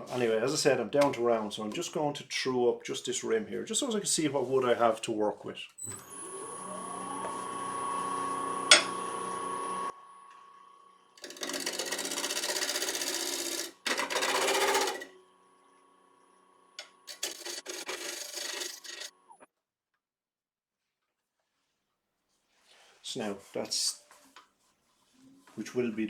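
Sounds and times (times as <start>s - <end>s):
lathe motor whine: 5.9s - 10.2s, 11.2s - 19.2s
gouge cutting wood on lathe: 11.2s - 15.1s, 17.1s - 19.1s.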